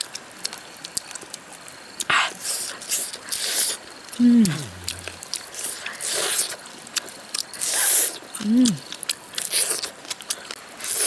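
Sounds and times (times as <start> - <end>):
wet chewing and smacking: 0.0 - 11.0
person humming: 4.2 - 5.2, 8.4 - 8.8.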